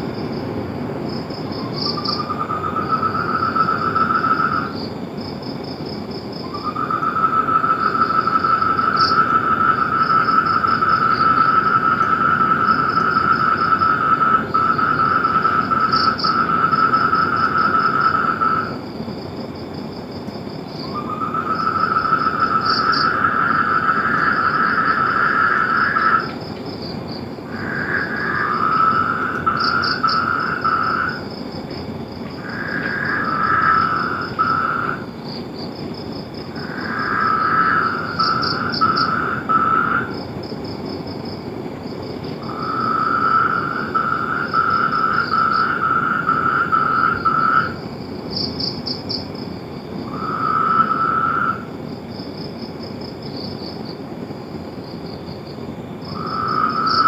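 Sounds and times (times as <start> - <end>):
frogs trilling: 0.0 - 57.0.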